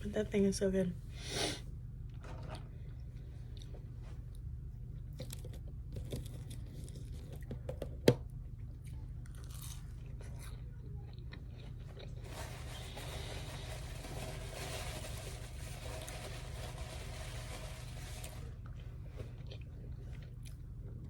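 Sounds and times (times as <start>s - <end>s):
person chewing food: 3.4s - 7.6s, 8.6s - 12.2s, 18.6s - 21.0s.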